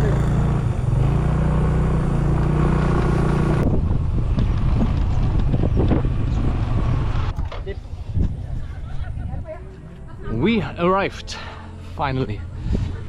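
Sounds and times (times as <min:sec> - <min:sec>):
small motorcycle engine running: 0:00.0 - 0:07.3.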